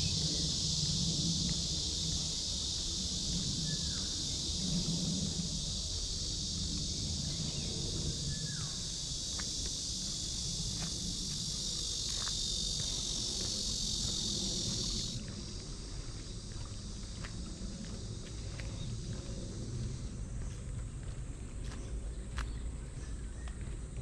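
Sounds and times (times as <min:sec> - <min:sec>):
cicada chorus buzzing: 0:00.0 - 0:24.0.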